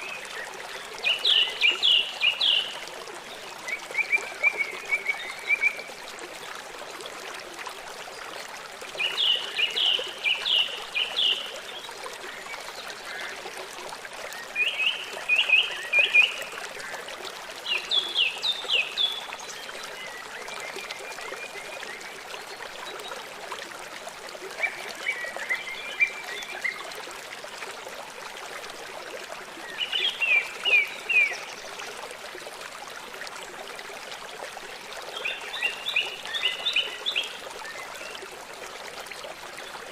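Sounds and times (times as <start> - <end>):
songbird singing: 0.0 - 2.9, 9.0 - 13.3
flowing water rushing: 0.0 - 39.9.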